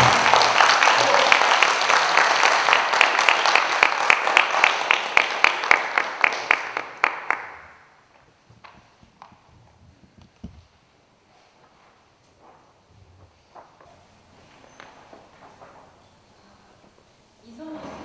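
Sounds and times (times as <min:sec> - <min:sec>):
person clapping near microphone: 0:00.0 - 0:07.7
audience applauding: 0:00.0 - 0:08.0.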